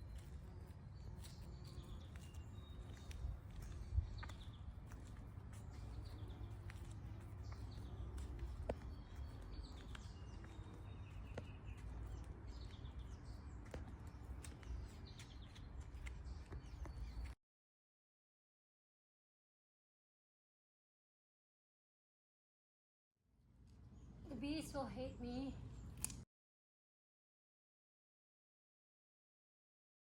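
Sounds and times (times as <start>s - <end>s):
birds chirping and twittering: 0.0s - 17.4s, 23.7s - 26.2s
sharp clicks: 26.0s - 26.2s.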